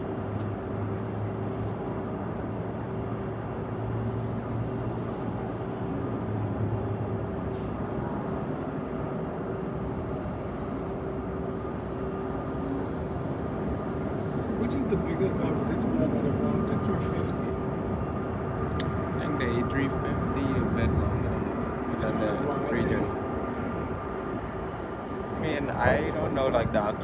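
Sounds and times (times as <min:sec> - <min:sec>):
jet engines rumbling: 0:09.8 - 0:27.0.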